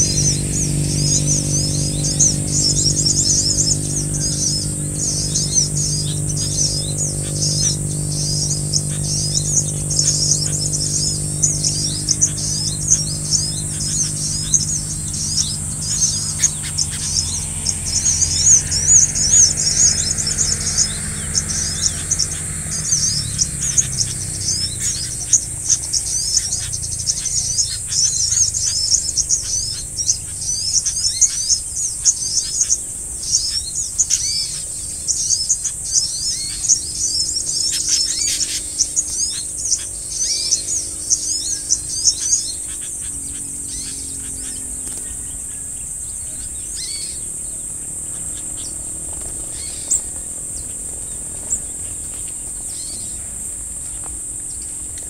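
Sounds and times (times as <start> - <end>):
high-pitched insect buzz: 0.0 - 32.5
birds chirping rapidly: 0.0 - 55.0.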